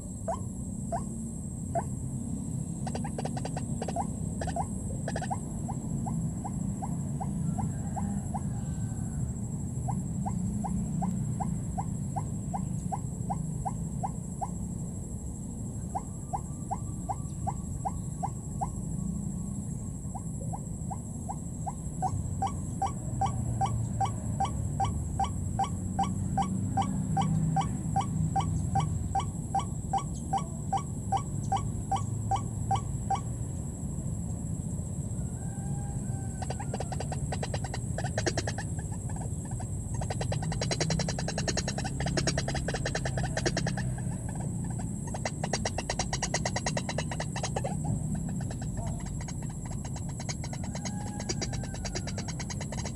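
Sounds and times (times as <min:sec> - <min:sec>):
waterhen calling: 0:02.8 - 0:05.8, 0:35.7 - 0:52.9.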